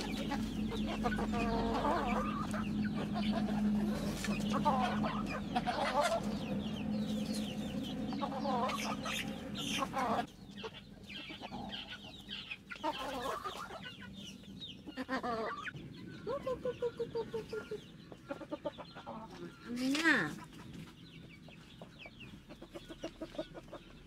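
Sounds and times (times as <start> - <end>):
steady low hum: 0.0 - 12.7
chickens clucking: 0.0 - 24.0.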